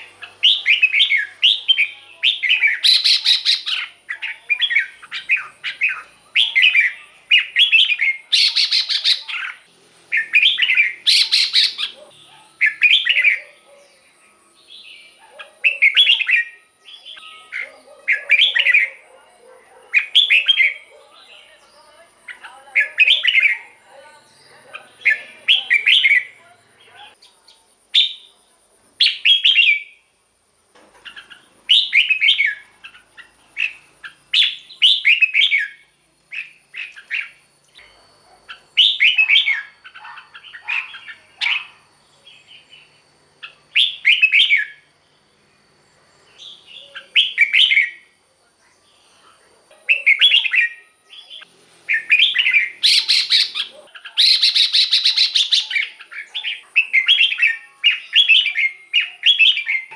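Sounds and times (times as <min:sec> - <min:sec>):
bird singing whistled phrases: 0:00.0 - 0:12.0, 0:12.6 - 0:13.4, 0:14.7 - 0:19.0, 0:31.7 - 0:32.6, 0:33.6 - 0:37.4, 0:43.4 - 0:44.9, 0:46.4 - 0:48.1, 0:49.9 - 0:59.9.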